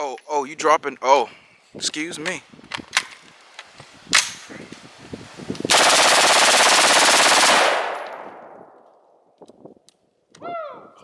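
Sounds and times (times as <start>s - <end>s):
automatic rifle burst: 5.7s - 8.5s
gunfire echo: 5.7s - 8.8s.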